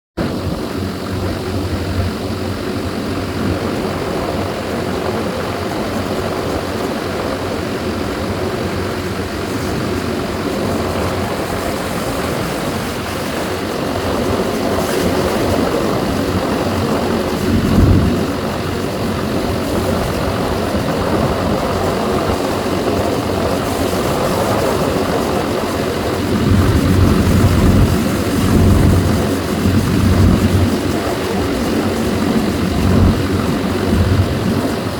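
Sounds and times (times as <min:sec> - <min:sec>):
heavy diesel machine engine: 0:00.2 - 0:34.9.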